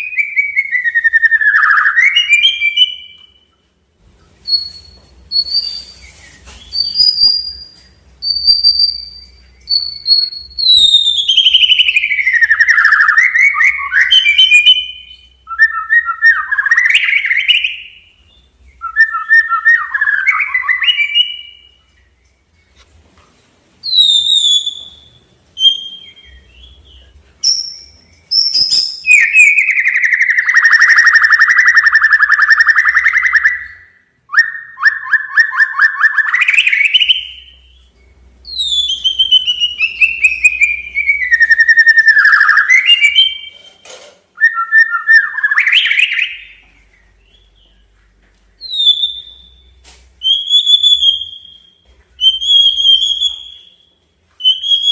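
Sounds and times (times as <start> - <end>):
bird singing whistles and trills: 0.0 - 3.6, 4.4 - 22.8, 23.8 - 54.9.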